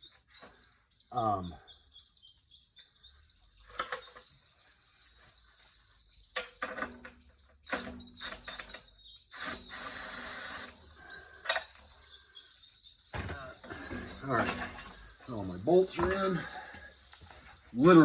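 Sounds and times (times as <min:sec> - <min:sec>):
tools and bolts clinking on metal: 0:06.4 - 0:08.9, 0:13.1 - 0:16.9.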